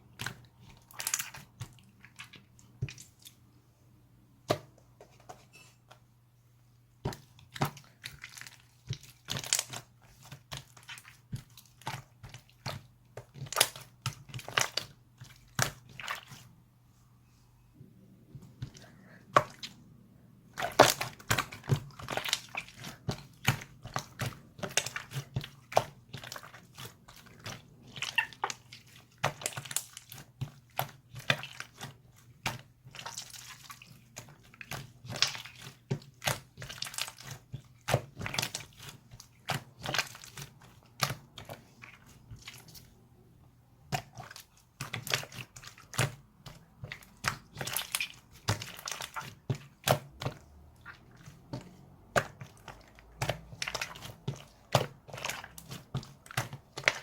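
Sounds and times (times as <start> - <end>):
slime squished by hand: 20.5 - 43.0, 43.8 - 57.0.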